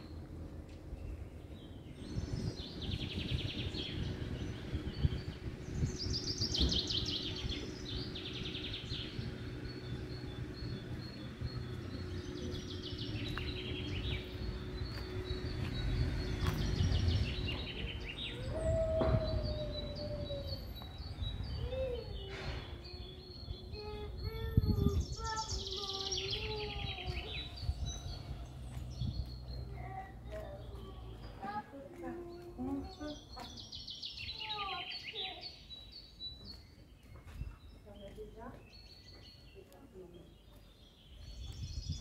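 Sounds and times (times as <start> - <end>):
small birds chirping: 0.0 - 42.0
street ambience: 0.0 - 42.0.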